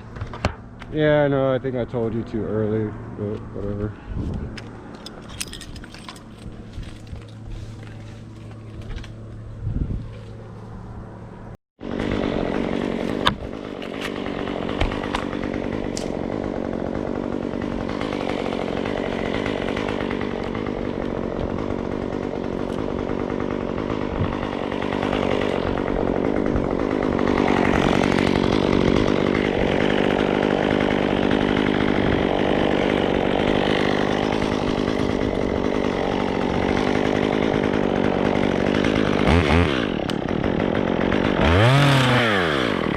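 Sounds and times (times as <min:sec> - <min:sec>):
chainsaw idling: 0:11.8 - 0:42.9
chainsaw running at high speed: 0:11.8 - 0:42.9.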